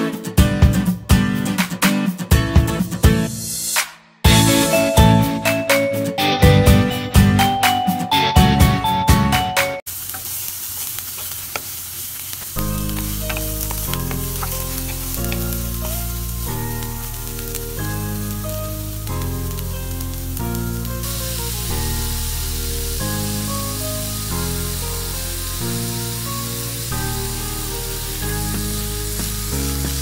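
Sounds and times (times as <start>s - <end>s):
background music: 0.0s - 9.8s, 12.6s - 30.0s
onions sizzling in a pan: 9.9s - 30.0s.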